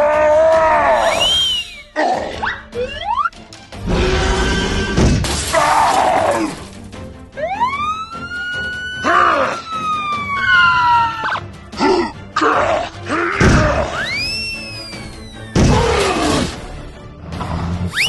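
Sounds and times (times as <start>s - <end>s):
background music: 0.0s - 18.0s
whistle-like sliding tone: 14.1s - 15.6s.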